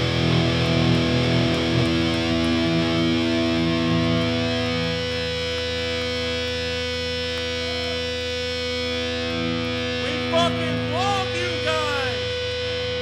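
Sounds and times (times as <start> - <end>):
distorted electric guitar chord: 0.0 - 13.0
short shouted voices: 10.0 - 12.4.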